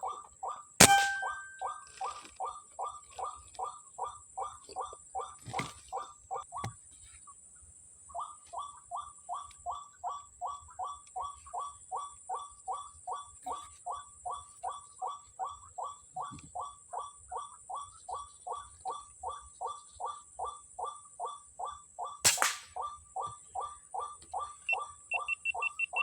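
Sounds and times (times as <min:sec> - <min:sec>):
waterhen calls: 0:00.0 - 0:06.7, 0:22.8 - 0:26.0.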